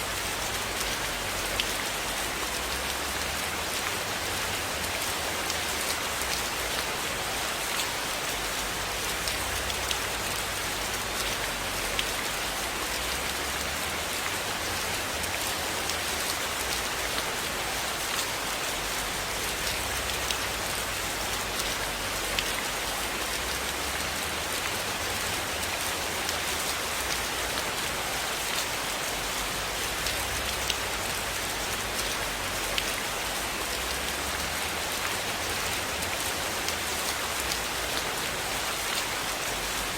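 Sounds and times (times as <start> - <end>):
steady rain hiss: 0.0 - 39.9
raindrop ticks: 30.0 - 30.9.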